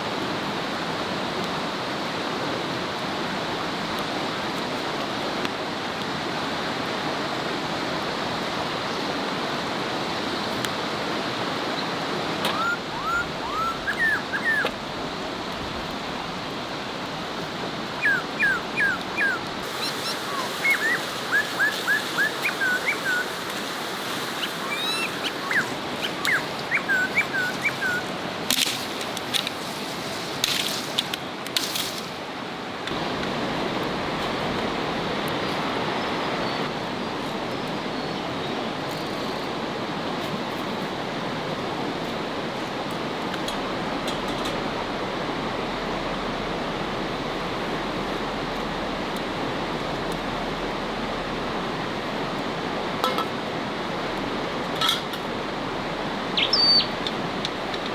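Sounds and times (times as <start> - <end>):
animal yipping: 12.4 - 14.7, 18.0 - 23.3, 24.4 - 28.1, 56.4 - 56.9.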